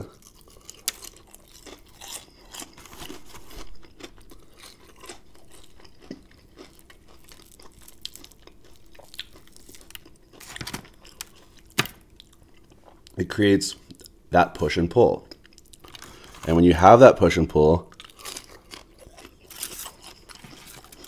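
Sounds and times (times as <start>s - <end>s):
crunchy chewing: 0.0s - 13.2s, 17.9s - 21.0s.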